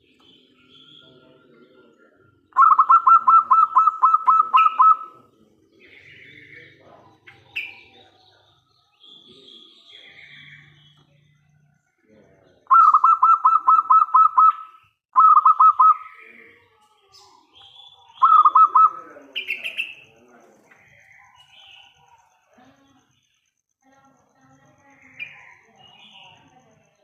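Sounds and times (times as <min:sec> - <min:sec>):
other birds chirping: 0:00.0 - 0:27.0
dove cooing: 0:02.5 - 0:06.2, 0:12.7 - 0:16.0, 0:18.2 - 0:19.9.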